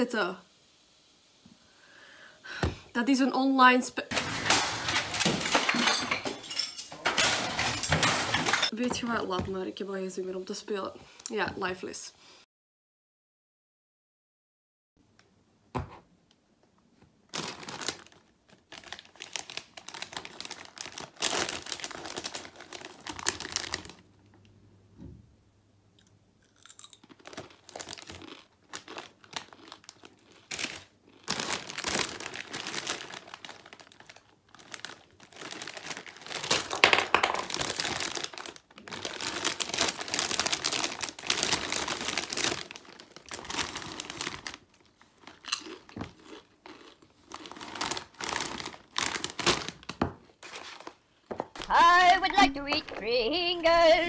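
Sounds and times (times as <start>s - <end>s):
foil bag crinkling: 17.3s - 24.0s, 27.0s - 51.0s
crisps crunched and chewed: 26.0s - 36.8s, 37.5s - 49.9s.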